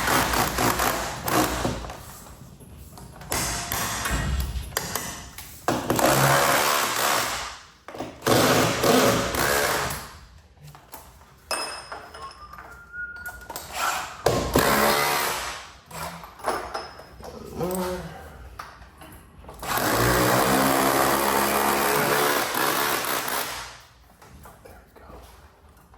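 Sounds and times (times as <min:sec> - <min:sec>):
power driver driving screws into wood: 0:05.8 - 0:07.6, 0:08.2 - 0:10.1, 0:13.7 - 0:15.7, 0:19.6 - 0:23.8.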